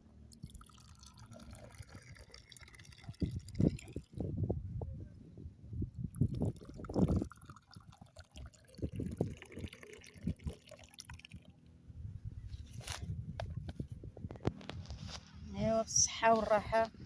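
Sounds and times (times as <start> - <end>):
hot drink pouring into cups: 0.3 - 4.2, 6.1 - 11.4.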